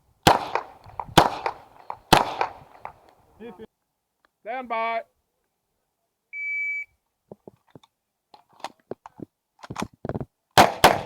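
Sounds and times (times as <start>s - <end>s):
pistol gunshots: 0.2s - 3.0s, 10.6s - 11.0s
shot timer start beep: 6.4s - 6.9s.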